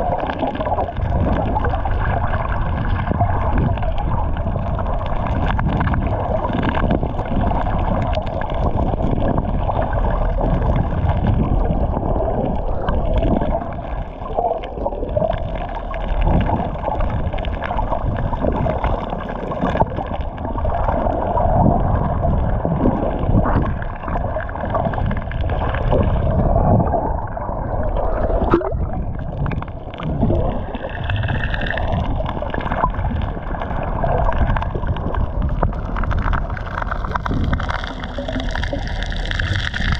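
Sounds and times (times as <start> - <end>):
muffled underwater gurgling: 0.0 - 39.9.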